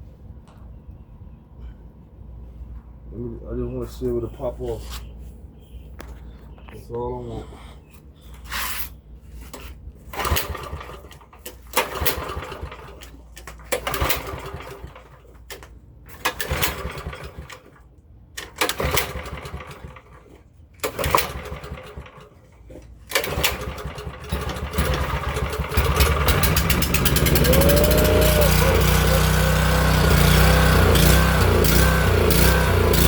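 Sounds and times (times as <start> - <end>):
small engine sputtering on cranking: 11.8 - 15.2, 16.2 - 17.7, 18.4 - 20.2, 20.8 - 22.3, 23.1 - 33.0
engine running: 22.8 - 33.0.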